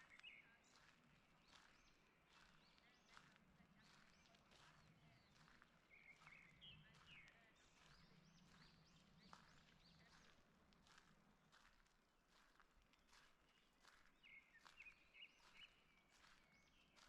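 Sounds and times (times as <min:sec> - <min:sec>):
footsteps on forest path: 0:00.0 - 0:17.0
small birds chirping: 0:00.0 - 0:17.0.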